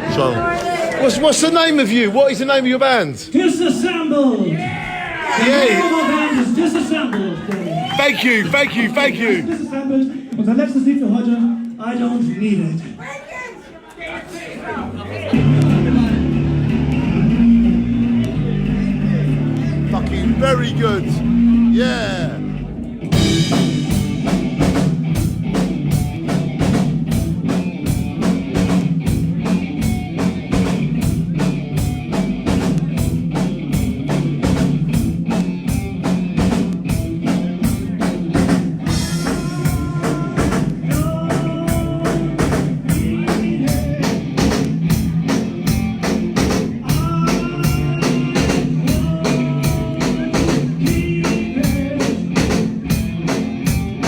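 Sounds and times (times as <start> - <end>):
rock band playing: 7.7 - 9.6, 15.3 - 54.0
drum kit beating: 7.9 - 9.5, 15.4 - 54.0.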